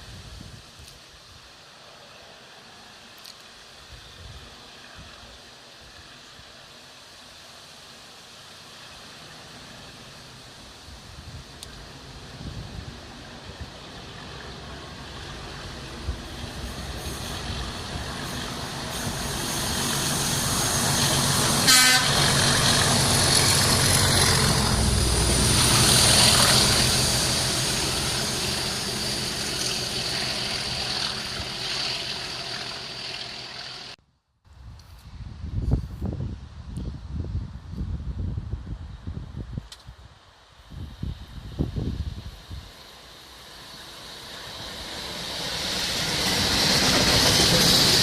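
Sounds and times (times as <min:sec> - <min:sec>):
diesel locomotive passing: 0:04.0 - 0:34.0, 0:42.0 - 0:48.0
train wheel noise: 0:11.5 - 0:34.0, 0:42.7 - 0:48.0
train horn toot: 0:21.6 - 0:22.6.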